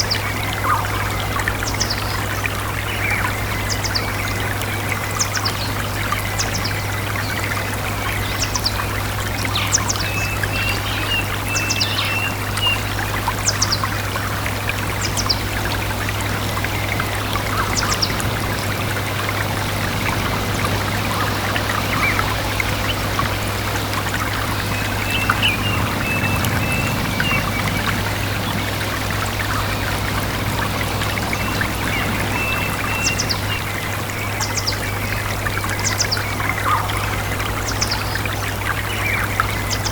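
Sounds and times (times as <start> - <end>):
birds calling: 0.0 - 39.9
stream trickling: 0.0 - 39.9
low bird chirps: 16.4 - 35.1.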